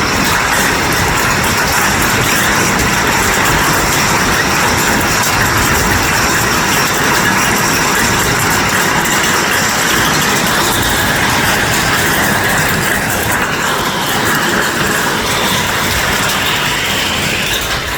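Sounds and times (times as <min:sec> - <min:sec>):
hail and heavy rain: 0:00.0 - 0:17.9.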